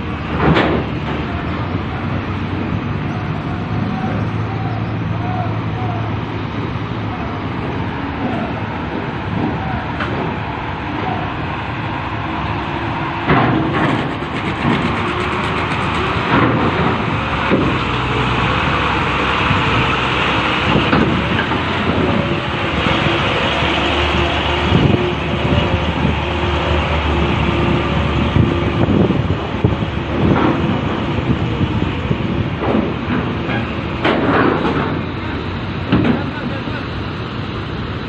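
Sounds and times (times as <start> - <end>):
strong wind: 0.0 - 38.0
truck engines running: 0.0 - 38.0
heavy clunks: 0.2 - 1.5, 13.2 - 15.0, 15.6 - 18.1, 29.6 - 36.5.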